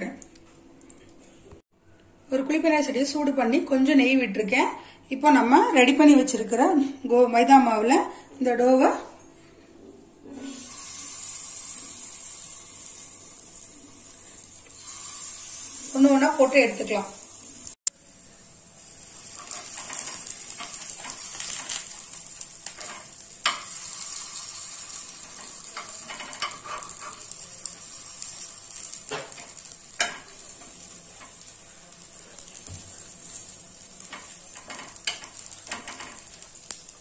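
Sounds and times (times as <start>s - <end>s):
batter balls sizzling in oil: 10.3s - 37.0s.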